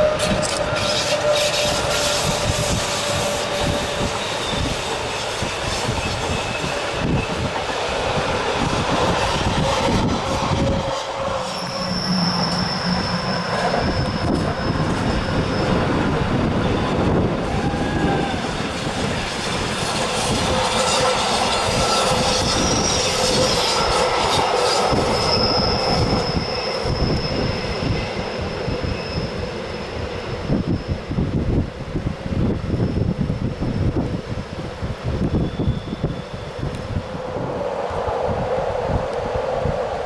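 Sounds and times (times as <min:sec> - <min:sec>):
train wheels squealing: 0:00.0 - 0:31.5, 0:32.3 - 0:34.4, 0:35.0 - 0:40.0
train rumbling over rails: 0:00.0 - 0:40.0.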